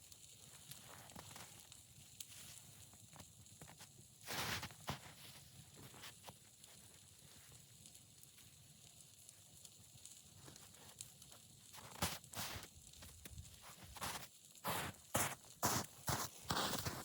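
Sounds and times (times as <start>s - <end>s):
footstep crunching in snow: 4.2s - 5.9s, 11.8s - 17.0s.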